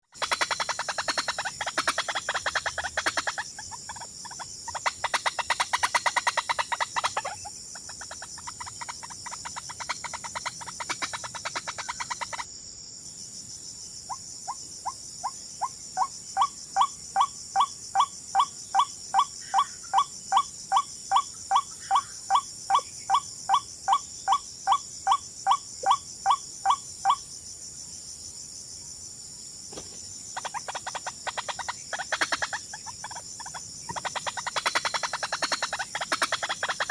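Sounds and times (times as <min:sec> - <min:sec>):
repeated short bird calls: 0:00.0 - 0:12.5
high insect hiss: 0:00.0 - 0:36.9
bird chattering trill: 0:00.1 - 0:12.4, 0:30.4 - 0:36.9.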